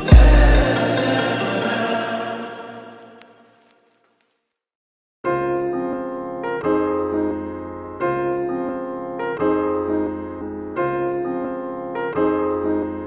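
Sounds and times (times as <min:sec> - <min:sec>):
electric piano chords: 0:00.0 - 0:02.0, 0:05.3 - 0:13.0.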